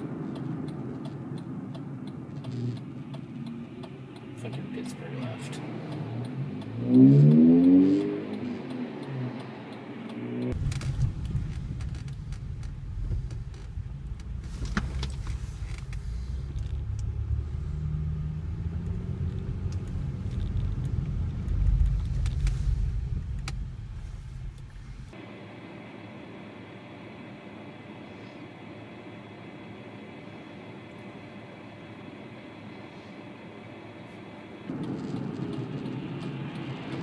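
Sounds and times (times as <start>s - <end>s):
car cabin road rumble: 0.0s - 25.2s, 33.4s - 37.0s.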